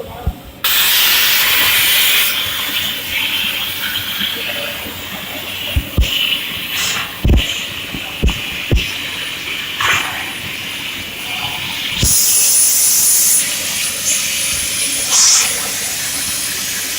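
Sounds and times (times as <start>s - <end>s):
low thumps: 0.1s - 0.6s, 5.8s - 6.2s, 7.2s - 8.9s
plasma torch cutting steel: 0.6s - 4.8s, 5.6s - 16.9s.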